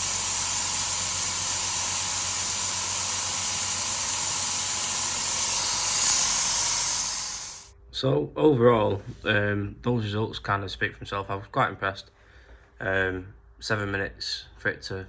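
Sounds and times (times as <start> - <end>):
compressed air hissing: 0.0 - 7.7.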